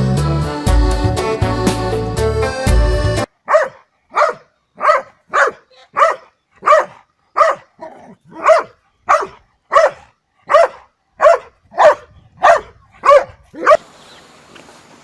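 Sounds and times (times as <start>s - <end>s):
dog barking: 3.4s - 13.8s.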